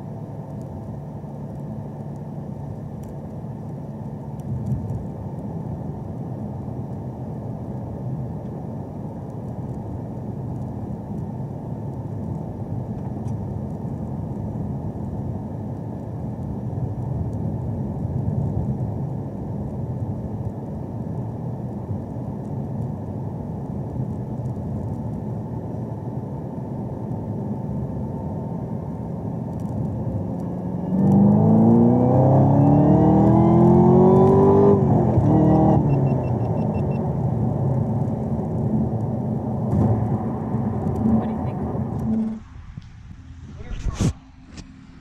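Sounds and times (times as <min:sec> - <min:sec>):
road noise: 0:00.0 - 0:45.0
car engine accelerating: 0:29.7 - 0:45.0.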